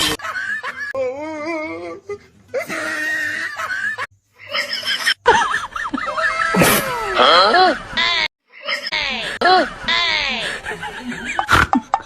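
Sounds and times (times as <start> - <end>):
person speaking with quavering voice: 8.6 - 11.3.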